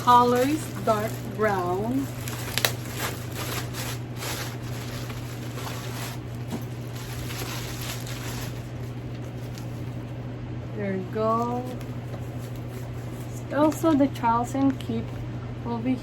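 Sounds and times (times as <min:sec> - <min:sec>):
rustling of bag packaging: 0:00.0 - 0:10.0
steady low hum: 0:00.0 - 0:16.0.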